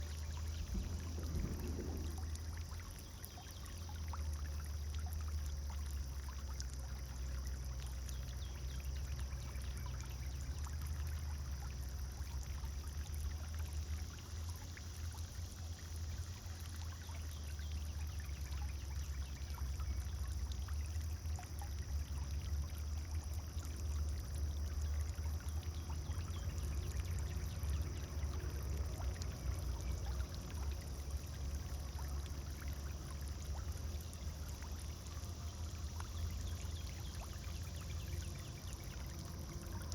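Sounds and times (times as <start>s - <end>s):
fountain water splashing: 0.0s - 39.9s
low rumble: 0.4s - 3.3s.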